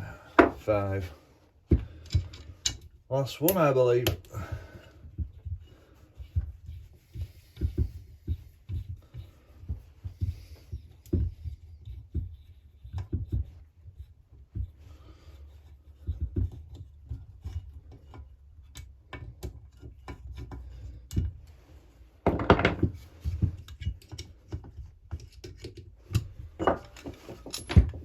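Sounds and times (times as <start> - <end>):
hand tool clicking on metal parts: 23.7 - 28.0.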